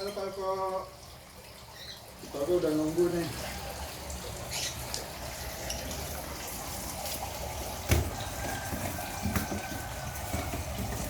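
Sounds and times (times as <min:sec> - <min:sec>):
running water: 0:00.0 - 0:11.0.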